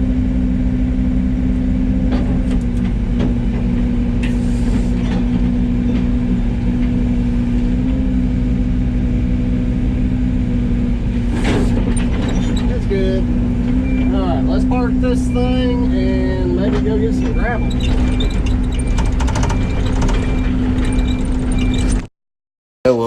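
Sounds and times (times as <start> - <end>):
excavator diesel engine running: 0.0 - 22.0
loud clatter: 11.1 - 12.8, 17.8 - 22.0.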